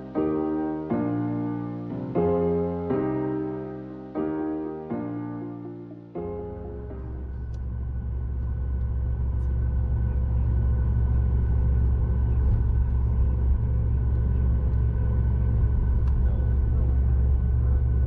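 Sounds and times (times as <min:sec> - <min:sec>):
aircraft cabin low rumble: 0:00.0 - 0:18.0
faint whining tones: 0:00.0 - 0:18.0.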